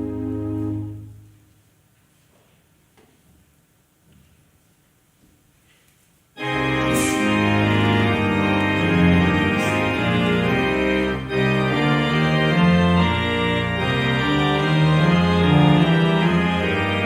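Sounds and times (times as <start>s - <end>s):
organ playing held chords: 0.0s - 1.4s, 6.4s - 17.0s.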